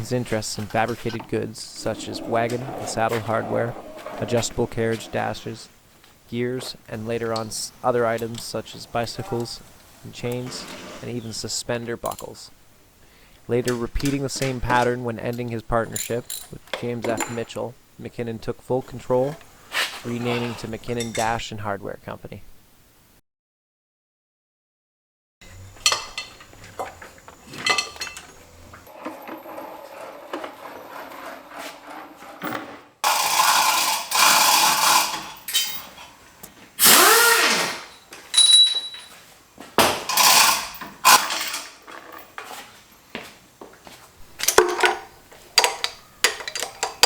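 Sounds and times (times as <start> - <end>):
metal tools clanking on engine parts: 13.7 - 17.5, 21.0 - 21.4, 25.7 - 36.1, 37.7 - 39.2, 40.0 - 42.5, 44.4 - 47.0.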